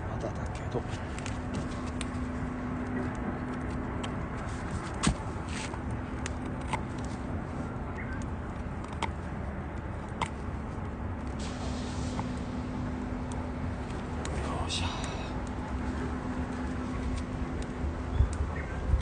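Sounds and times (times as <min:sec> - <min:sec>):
crackling wood pops: 0:04.8 - 0:07.1
wood fire rushing: 0:11.2 - 0:17.3.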